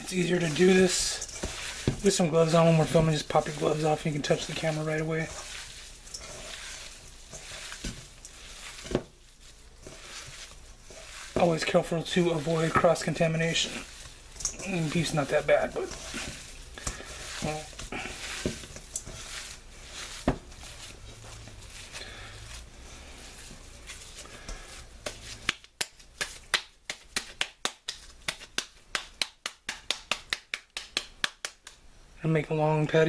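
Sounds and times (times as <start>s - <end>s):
hands squishing raw meat: 0.0s - 31.9s
slapping meat into patty: 25.0s - 31.8s.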